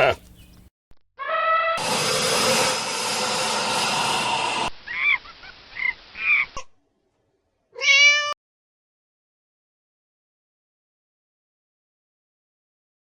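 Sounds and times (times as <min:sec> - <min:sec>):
rising animal call: 0:01.2 - 0:02.0.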